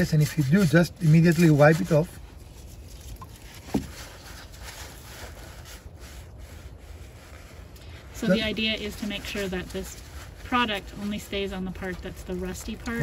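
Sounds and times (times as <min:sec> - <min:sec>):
toothbrush scrubbing metal: 0:00.0 - 0:02.2.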